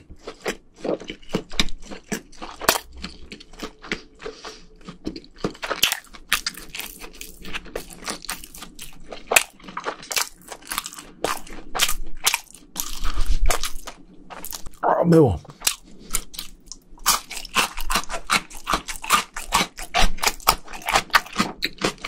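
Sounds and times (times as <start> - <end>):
close-miked chewing: 0.0 - 14.8, 15.5 - 22.0.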